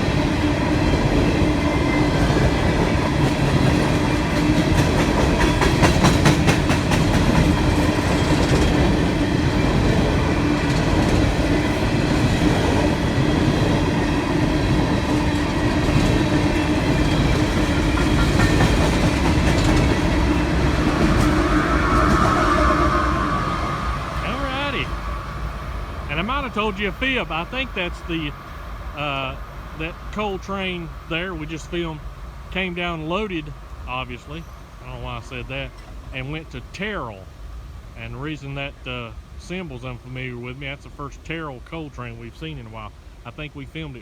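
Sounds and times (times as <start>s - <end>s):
train cars rumbling on rails: 0.0s - 44.0s
wheels clicking over rail joint: 15.8s - 20.3s.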